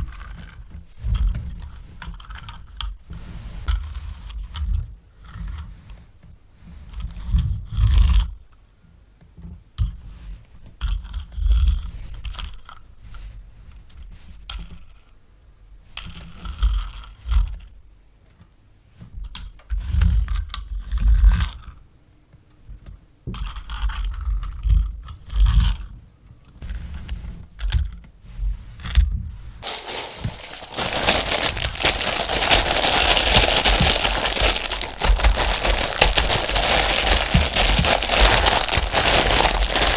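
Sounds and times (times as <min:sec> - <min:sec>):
packaging crinkling: 0:29.6 - 0:39.9
packaging scrapes and knocks: 0:29.6 - 0:39.9.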